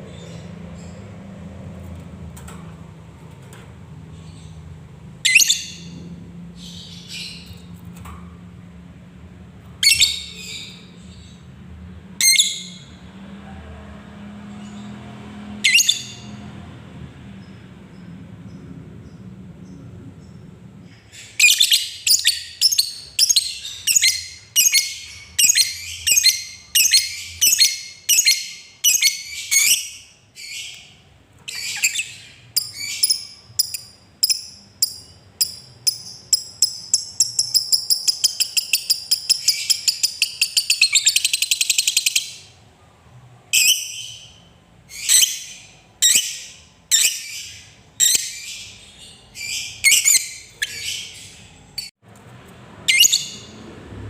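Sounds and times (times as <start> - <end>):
lovebird chirping and chattering: 4.2 - 6.0, 9.8 - 11.4, 15.7 - 16.3, 17.4 - 30.9, 31.5 - 42.5, 43.6 - 51.9, 52.9 - 53.6.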